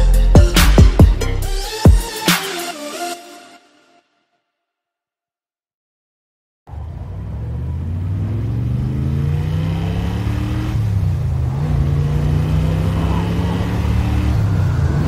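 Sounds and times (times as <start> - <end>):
car engine accelerating hard: 6.7 - 15.0.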